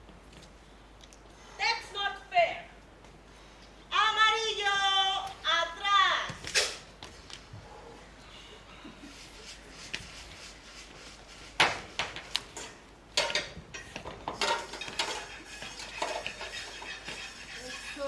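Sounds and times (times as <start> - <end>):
objects knocking and clattering: 11.6 - 17.7.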